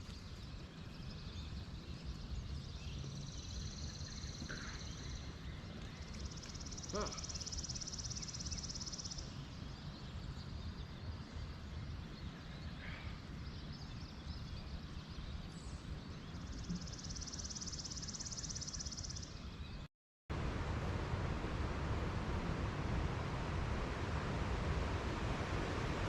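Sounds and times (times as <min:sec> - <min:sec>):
bird chirp: 0:00.0 - 0:19.9
wind rumble: 0:20.3 - 0:26.0.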